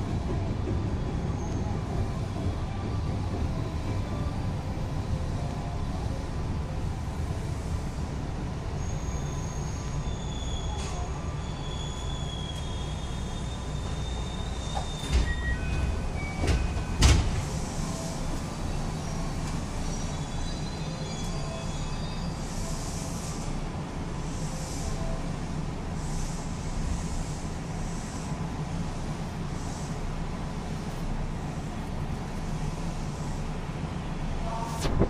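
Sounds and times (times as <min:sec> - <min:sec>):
train wheels rumbling on rail: 0:00.0 - 0:35.0
high wheel squeal: 0:08.8 - 0:17.0, 0:19.0 - 0:22.8.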